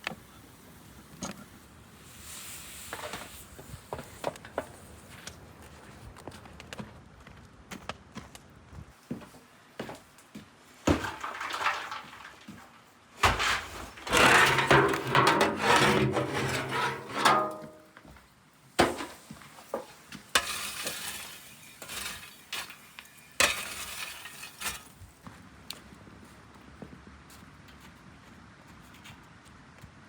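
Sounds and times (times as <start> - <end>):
dishes clinking and scraping: 13.2 - 17.9.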